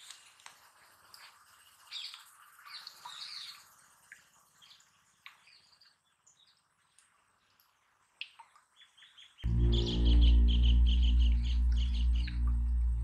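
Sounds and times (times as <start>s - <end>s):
faint small bird chirps: 4.5s - 12.6s.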